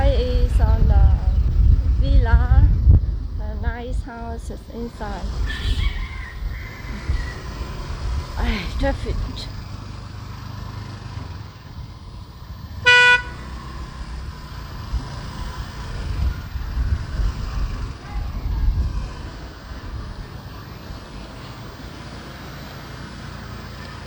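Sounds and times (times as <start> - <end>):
street traffic rumble: 0.0 - 24.0
vehicle horn honking: 12.6 - 13.9.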